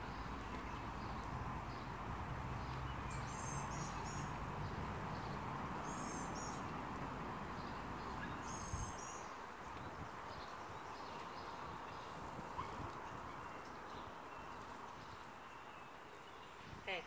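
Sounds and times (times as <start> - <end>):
bird chirping: 2.6 - 6.7, 7.6 - 16.8.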